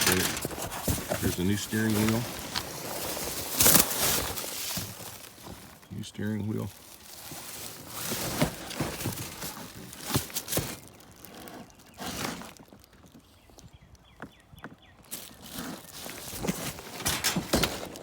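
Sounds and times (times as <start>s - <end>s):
parts and packaging handled: 0.0s - 14.0s, 15.0s - 18.0s.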